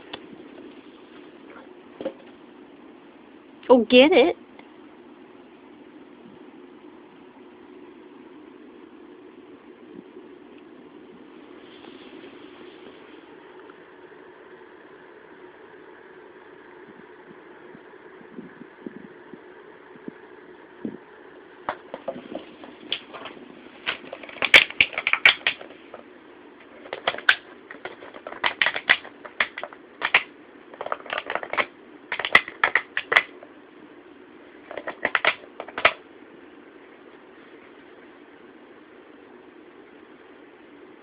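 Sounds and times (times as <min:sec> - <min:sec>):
background hum: 0:00.0 - 0:41.0
plastic bottle crackling: 0:21.7 - 0:26.0, 0:26.6 - 0:33.4, 0:34.7 - 0:36.0.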